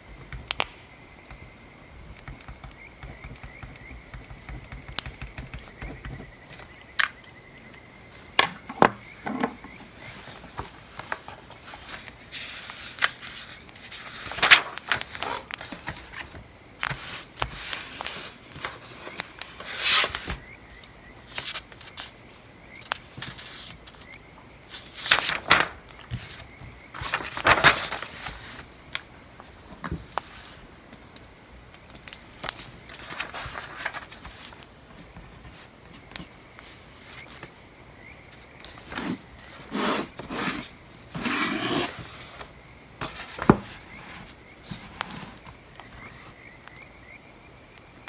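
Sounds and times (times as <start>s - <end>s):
paper rustling: 8.6s - 30.7s, 32.1s - 37.6s, 38.3s - 46.3s.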